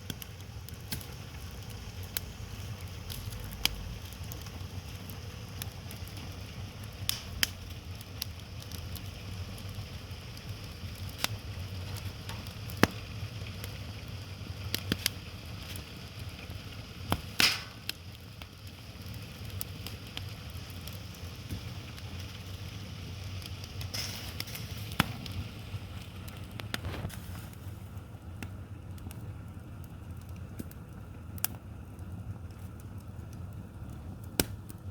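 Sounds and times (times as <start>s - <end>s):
firewood popping: 0.0s - 34.9s
wood fire crackling: 0.0s - 34.9s.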